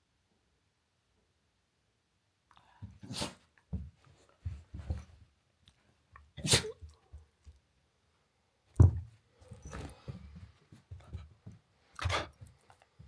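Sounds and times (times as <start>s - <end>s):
puppy sneezing: 3.0s - 3.4s, 6.4s - 6.9s.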